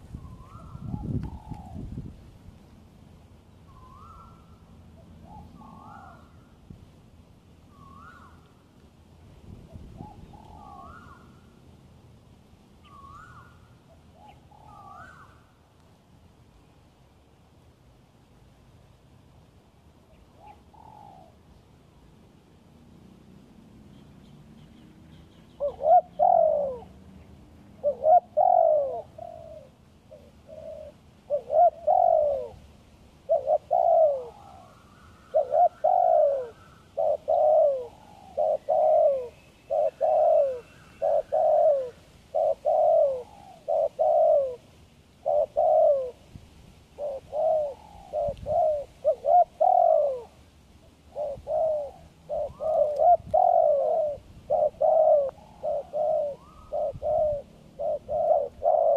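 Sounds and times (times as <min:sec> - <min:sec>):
dove cooing: 0:00.0 - 0:02.0, 0:03.7 - 0:06.5, 0:09.6 - 0:11.6, 0:12.8 - 0:15.5, 0:20.4 - 0:21.4, 0:25.1 - 0:27.0, 0:27.7 - 0:46.2, 0:46.9 - 0:58.9.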